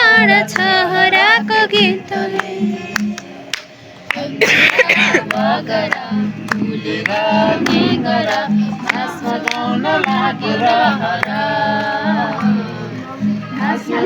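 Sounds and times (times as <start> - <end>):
group of people singing: 0.0 - 14.0
repeating low beat: 6.4 - 9.2.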